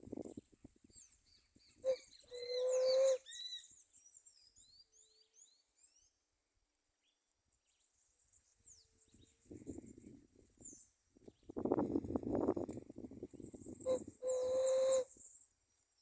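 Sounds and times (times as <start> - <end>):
low hooting bird call: 1.8 - 3.7, 13.8 - 15.2
high bird chirps and whistles: 1.9 - 3.8, 13.7 - 15.3.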